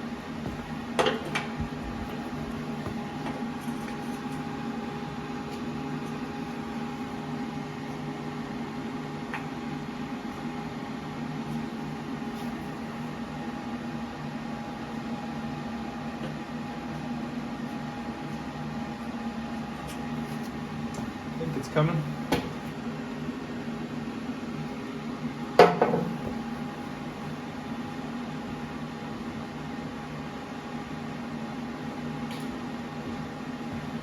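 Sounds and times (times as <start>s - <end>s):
machine hum: 0.0s - 8.4s.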